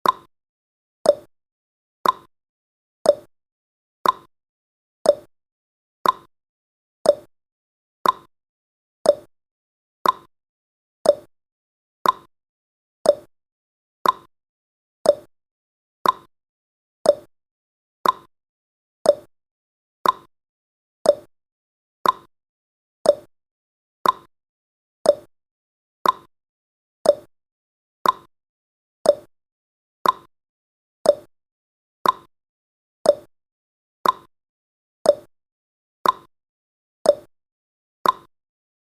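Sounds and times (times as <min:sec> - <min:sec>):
clock ticking: 0:02.0 - 0:02.3, 0:04.0 - 0:04.3, 0:06.0 - 0:06.3, 0:08.0 - 0:08.3, 0:10.0 - 0:10.3, 0:12.0 - 0:12.3, 0:13.1 - 0:13.3, 0:14.0 - 0:14.3, 0:15.1 - 0:15.3, 0:16.0 - 0:16.3, 0:18.0 - 0:18.3, 0:20.0 - 0:20.3, 0:22.0 - 0:22.3, 0:24.0 - 0:24.3, 0:25.1 - 0:25.3, 0:26.0 - 0:26.3, 0:27.1 - 0:27.3, 0:28.0 - 0:28.3, 0:29.1 - 0:29.3, 0:30.0 - 0:30.3, 0:32.0 - 0:32.3, 0:33.1 - 0:33.3, 0:34.0 - 0:34.3, 0:36.0 - 0:36.3, 0:38.0 - 0:38.3.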